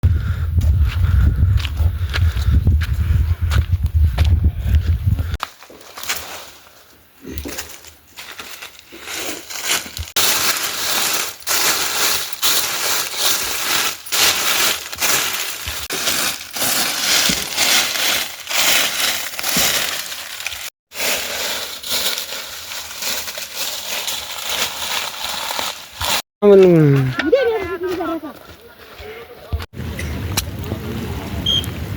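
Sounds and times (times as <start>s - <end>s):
dense crackling and crunching: 7.3s - 26.2s.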